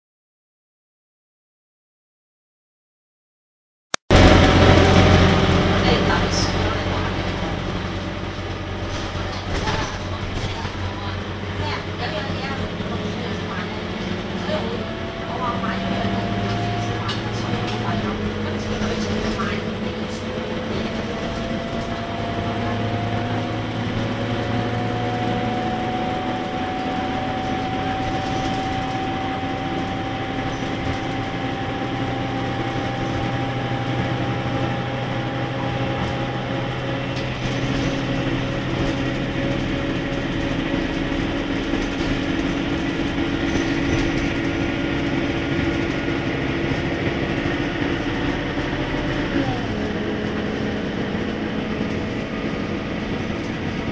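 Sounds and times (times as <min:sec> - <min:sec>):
bus engine hum with whine: 0:04.1 - 0:53.9.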